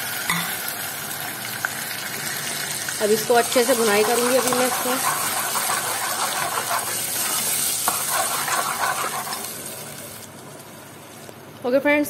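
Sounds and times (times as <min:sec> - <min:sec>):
paste sizzling in hot oil: 0:00.0 - 0:11.3
ladle scraping a pot: 0:03.5 - 0:09.5.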